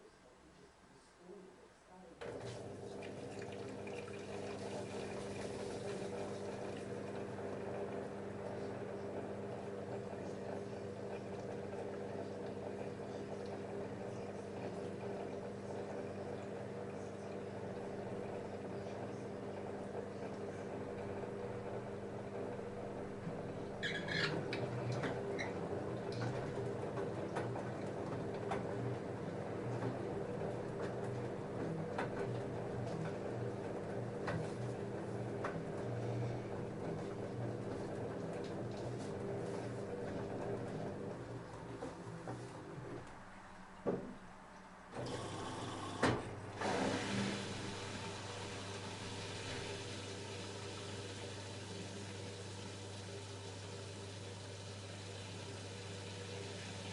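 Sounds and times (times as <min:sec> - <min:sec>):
washing machine humming: 0:02.2 - 0:56.9
water sloshing in drum: 0:02.3 - 0:07.3.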